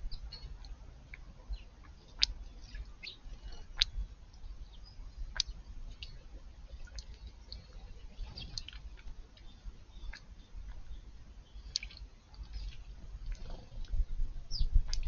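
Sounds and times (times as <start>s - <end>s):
birds chirping: 0.0s - 15.0s
sharp clicking bird notes: 5.3s - 6.2s, 11.6s - 12.0s, 12.6s - 15.0s.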